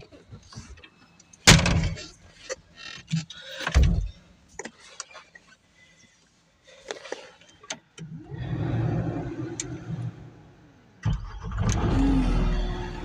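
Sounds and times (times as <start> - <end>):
skid loader engine starting: 8.1 - 13.0.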